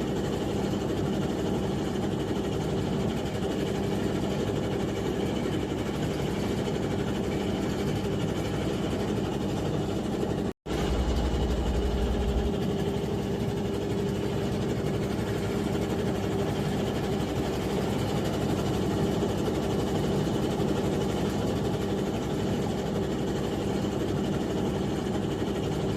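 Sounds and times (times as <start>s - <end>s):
ship engines droning: 10.7s - 14.4s.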